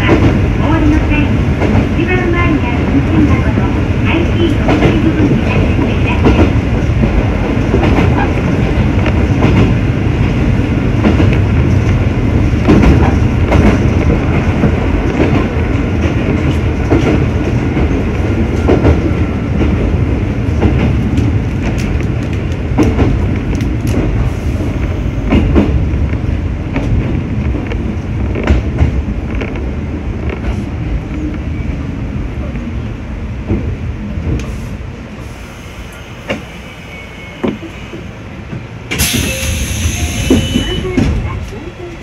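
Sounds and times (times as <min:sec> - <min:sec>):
train wheels and motors rumbling: 0:00.0 - 0:42.0
clacks over rail joints: 0:03.1 - 0:10.4, 0:12.6 - 0:24.2.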